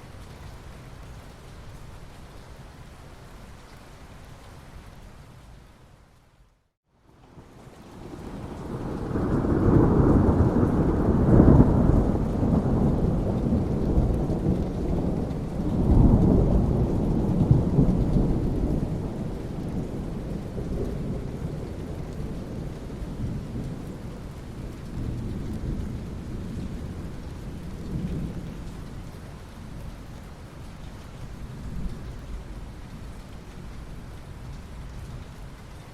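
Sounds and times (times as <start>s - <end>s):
steady rain: 0.0s - 35.9s
thunder rumbling: 8.0s - 29.0s.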